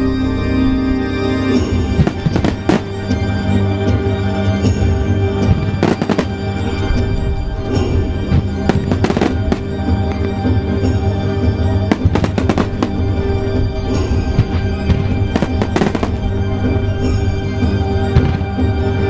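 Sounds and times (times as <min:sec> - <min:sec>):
music playing: 0:00.0 - 0:19.0
fireworks crackling: 0:02.0 - 0:03.3, 0:05.6 - 0:06.6, 0:08.4 - 0:10.5, 0:11.9 - 0:13.2, 0:13.9 - 0:16.4.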